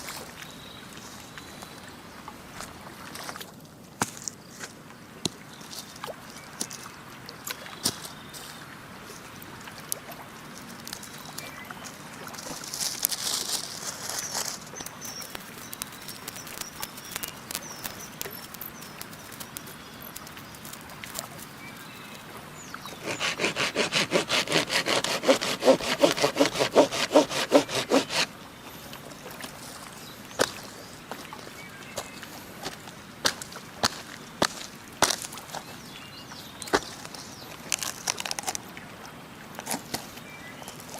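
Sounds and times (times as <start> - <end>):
small clicks: 14.6 - 21.9
hand saw cutting wood: 23.0 - 28.3.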